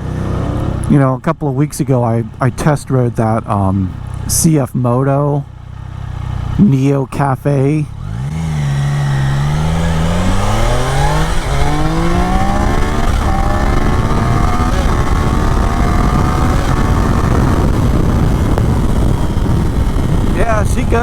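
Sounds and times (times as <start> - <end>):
motorcycle engine accelerating: 0.0 - 1.0, 5.4 - 21.0
wind rush: 8.0 - 21.0.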